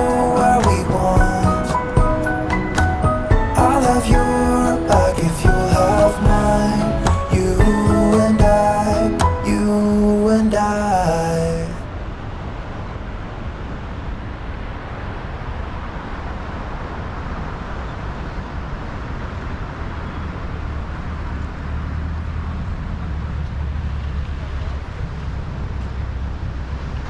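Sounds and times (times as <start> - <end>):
road noise rumble: 0.0 - 27.0.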